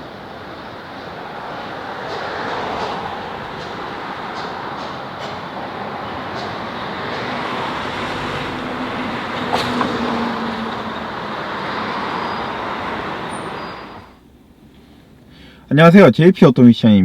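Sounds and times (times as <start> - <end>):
vehicle road and engine noise: 0.0 - 15.7.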